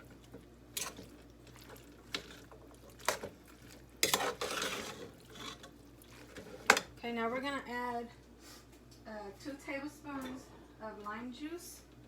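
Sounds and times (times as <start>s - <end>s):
spoon stirring soup in a pot: 0.0s - 7.0s.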